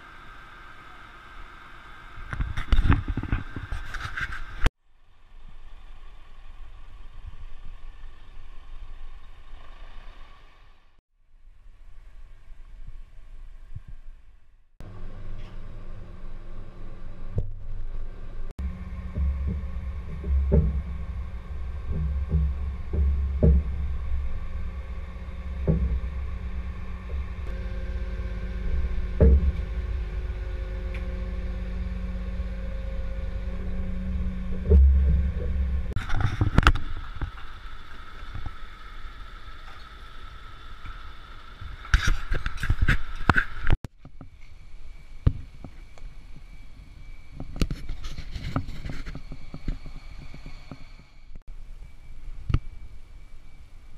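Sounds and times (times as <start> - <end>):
high steady hydraulic whine: 0.0 - 7.9, 14.8 - 53.9
lorry engine running: 14.8 - 41.9
knocks and clunks: 18.6 - 37.4.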